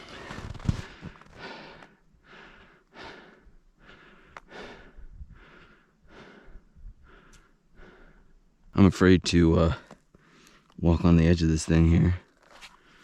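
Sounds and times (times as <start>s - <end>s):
person breathing hard: 0.0s - 8.4s.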